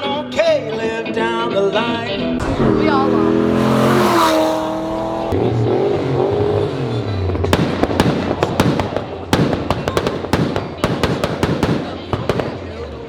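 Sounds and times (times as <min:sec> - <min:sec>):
car engine revving: 0:01.8 - 0:08.5.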